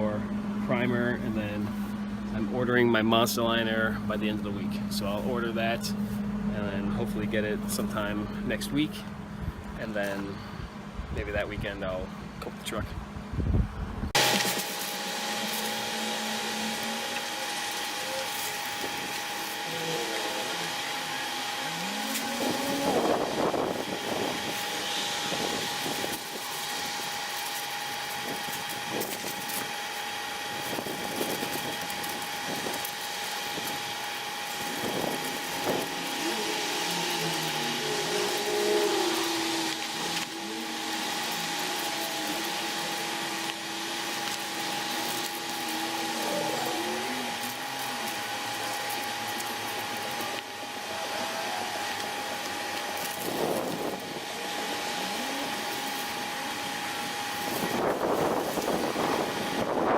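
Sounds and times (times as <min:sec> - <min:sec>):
power tool whining: 0:14.0 - 0:59.9.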